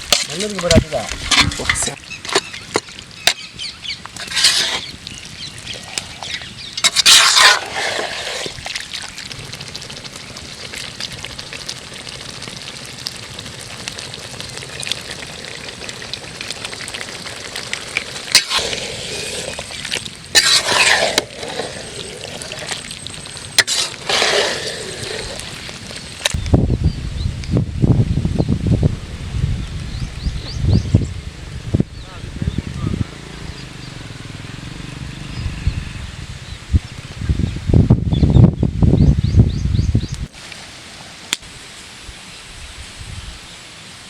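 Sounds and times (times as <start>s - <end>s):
meat sizzling in a pot: 0.0s - 26.4s.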